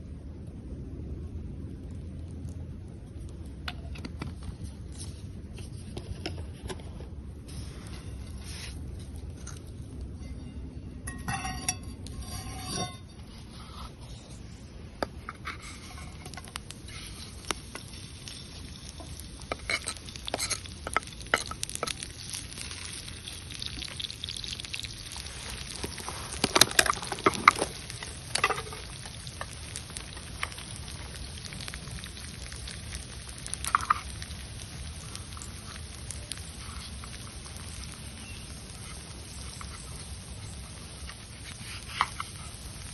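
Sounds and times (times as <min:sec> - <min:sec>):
food sizzling over a fire: 0:00.1 - 0:42.9
utensil clicks and scrapes: 0:15.0 - 0:22.9, 0:41.0 - 0:42.6.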